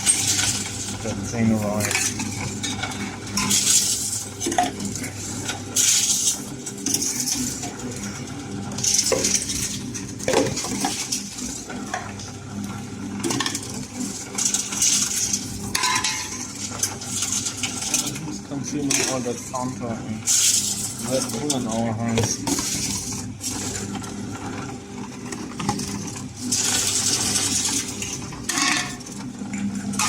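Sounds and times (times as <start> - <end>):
bottles and cans clinking: 8.9 - 11.2, 28.5 - 29.1.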